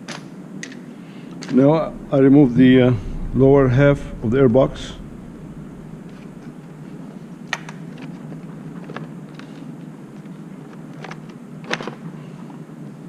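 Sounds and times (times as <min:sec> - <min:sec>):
steady low hum: 0:01.6 - 0:08.0.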